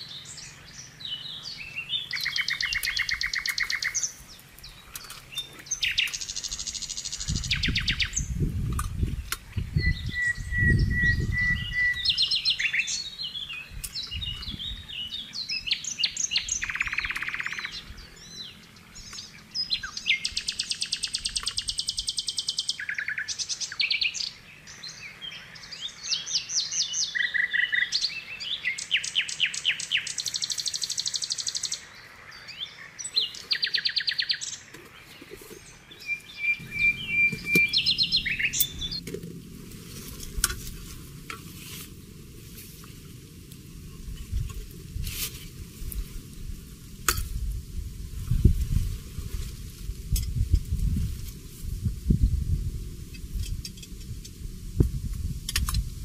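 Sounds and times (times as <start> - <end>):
birds singing: 0.0 - 39.5.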